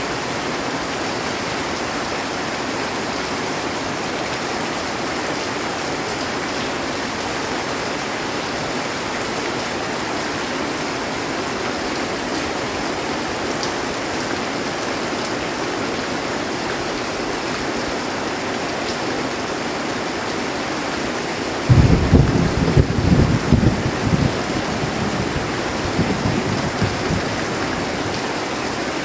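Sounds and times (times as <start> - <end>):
heavy rain on a metal roof: 0.0 - 29.0
low rumble of thunder: 21.7 - 28.3.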